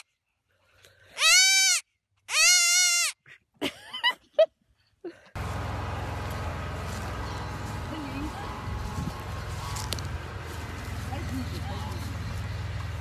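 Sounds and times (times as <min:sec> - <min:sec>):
baby goat bleating: 0:01.2 - 0:03.2.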